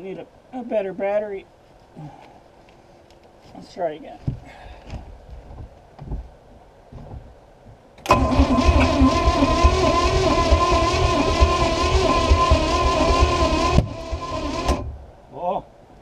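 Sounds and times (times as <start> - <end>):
starter cranking boat engine: 8.0 - 15.0.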